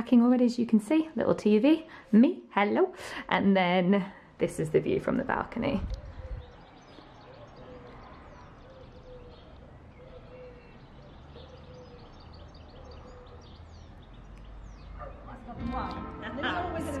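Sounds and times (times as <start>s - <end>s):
higher bird chirps: 5.9s - 17.0s.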